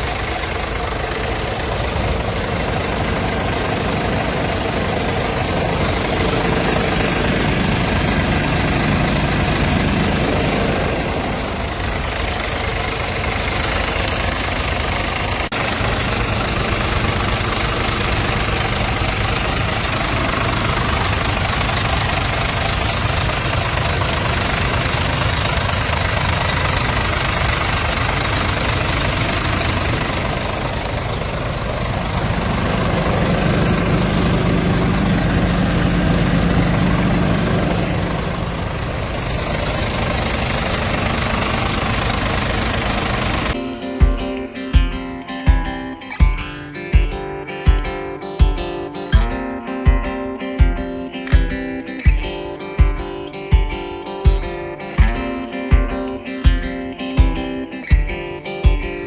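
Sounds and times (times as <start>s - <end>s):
diesel engine idling: 0.0s - 43.6s.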